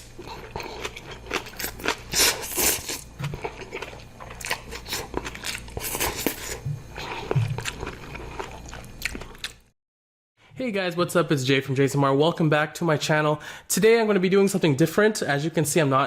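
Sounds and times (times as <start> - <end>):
chewing and crunching food: 0.0 - 9.7.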